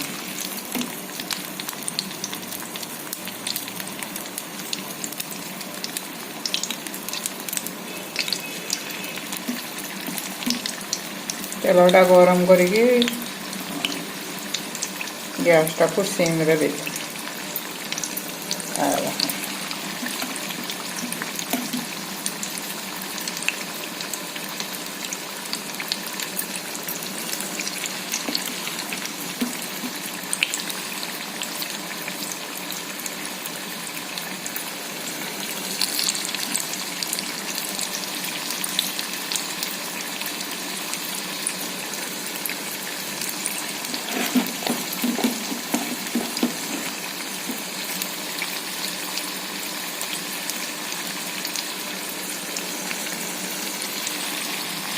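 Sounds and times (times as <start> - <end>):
food sizzling in hot oil: 0.0 - 54.9
oil popping: 8.2 - 11.4, 17.8 - 22.4, 43.5 - 47.8.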